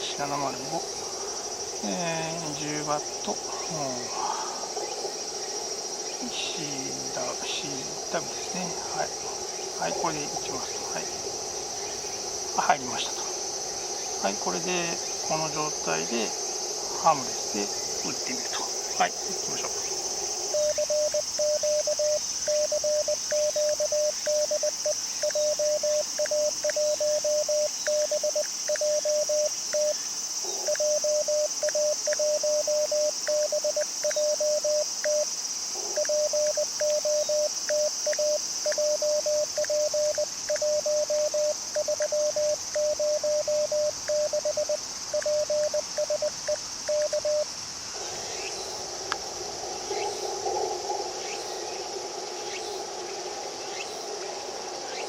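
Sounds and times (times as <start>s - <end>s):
crickets chirring: 0.0s - 55.0s
morse code tone: 20.5s - 30.0s, 30.7s - 35.3s, 36.0s - 47.5s.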